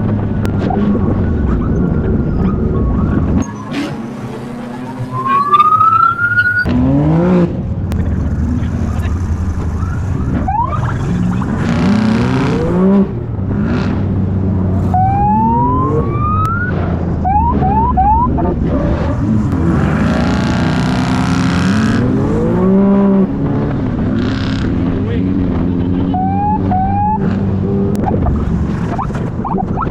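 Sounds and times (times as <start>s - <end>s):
vehicle engines revving: 0.0s - 29.9s
siren whoop and chirps: 0.7s - 3.8s, 4.7s - 6.7s, 9.8s - 11.5s, 14.8s - 18.6s, 26.1s - 27.2s.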